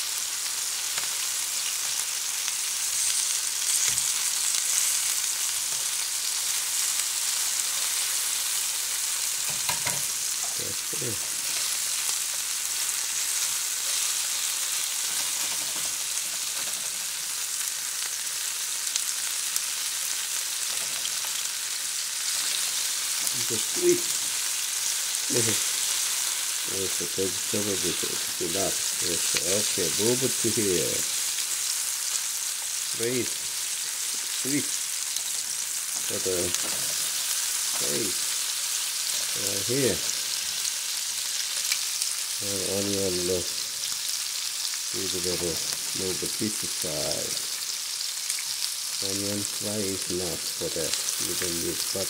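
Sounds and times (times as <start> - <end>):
chicken sizzling in a frying pan: 0.0 - 52.0.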